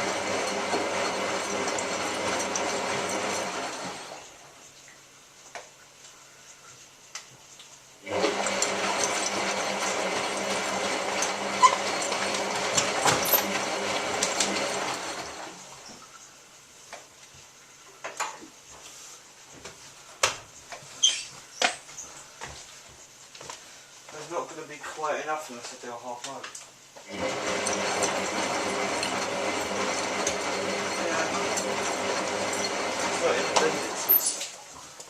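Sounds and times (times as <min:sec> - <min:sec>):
washing machine water rushing: 0:00.0 - 0:04.7, 0:08.0 - 0:15.8, 0:27.0 - 0:34.7.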